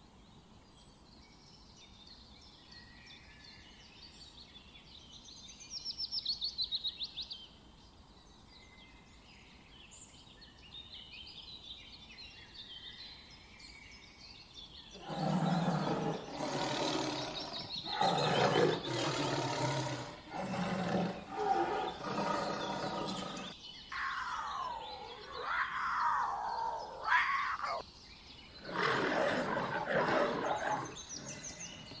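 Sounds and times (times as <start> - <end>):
small birds trilling and chirping: 0.0 - 32.0
calls sliding up and down in pitch: 15.0 - 27.8
large animal roaring: 15.0 - 27.8, 28.6 - 32.0.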